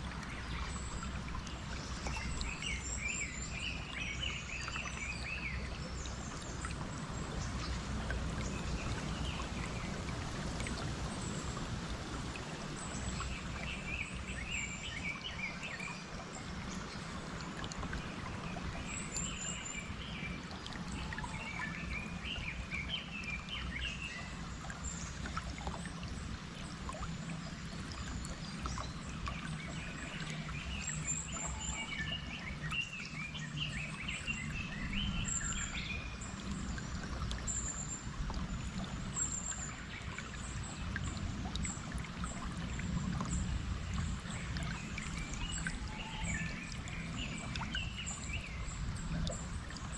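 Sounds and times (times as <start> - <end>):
stream water flowing: 0.0 - 49.9
birds singing: 27.9 - 49.7.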